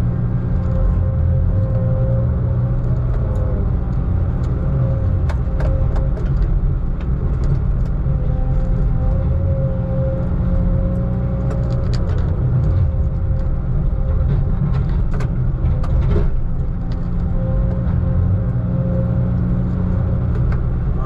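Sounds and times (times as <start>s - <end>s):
diesel engine rumble inside cab: 0.0s - 21.0s
small rattles and clicks: 4.4s - 9.2s, 10.9s - 18.1s.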